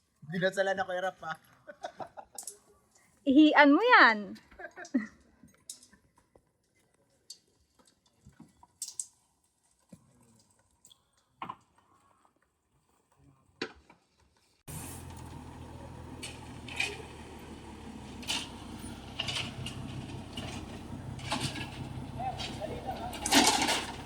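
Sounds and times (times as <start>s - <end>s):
machine humming: 14.7s - 24.0s.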